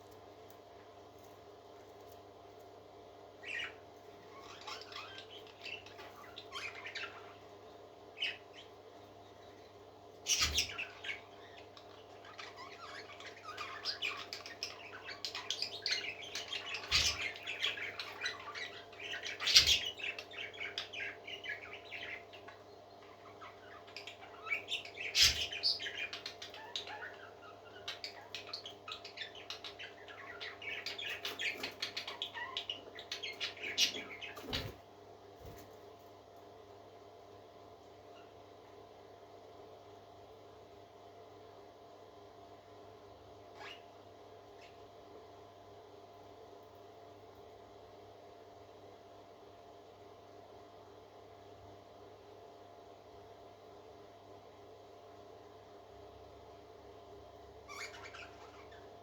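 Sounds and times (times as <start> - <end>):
baby parrots chirping and squawking: 3.4 - 7.4, 10.3 - 34.8, 43.6 - 43.9, 57.7 - 58.9.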